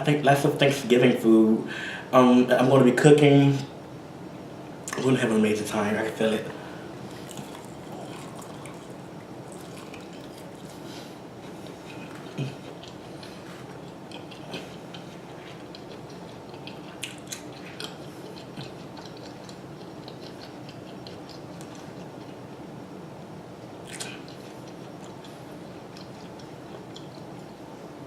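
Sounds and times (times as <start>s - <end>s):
low room hum: 0.0s - 28.0s
person chewing food: 7.0s - 22.7s, 23.7s - 27.6s.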